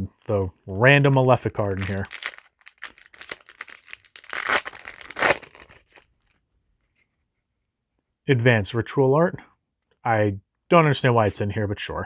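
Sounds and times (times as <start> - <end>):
foil wrapper crinkling and tearing: 1.0 - 6.0.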